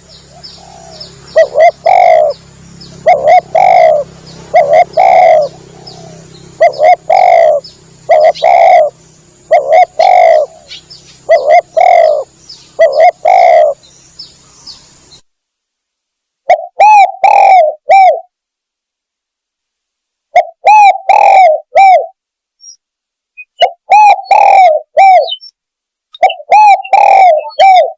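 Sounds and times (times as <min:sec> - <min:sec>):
dove cooing: 0:00.0 - 0:14.8, 0:16.4 - 0:18.3, 0:20.3 - 0:22.2, 0:23.6 - 0:25.5, 0:26.2 - 0:27.9.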